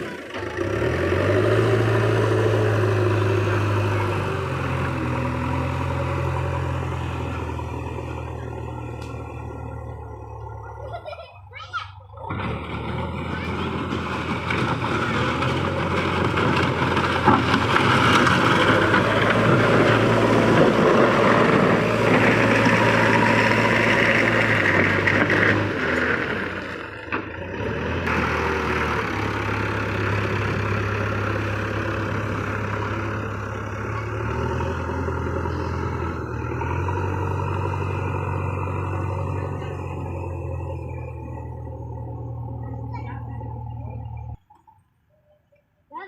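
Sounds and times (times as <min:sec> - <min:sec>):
diesel engine of earthmoving machine: 0:00.0 - 0:44.5.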